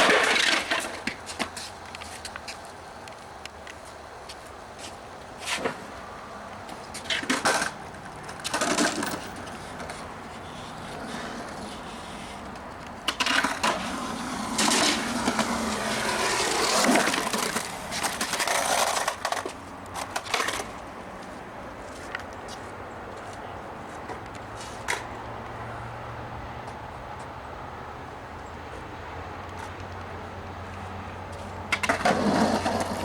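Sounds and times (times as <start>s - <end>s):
skateboard deck clacking: 0.0s - 2.4s, 7.0s - 20.8s, 31.7s - 33.0s
skateboard wheels rolling: 0.0s - 25.8s, 28.9s - 33.0s.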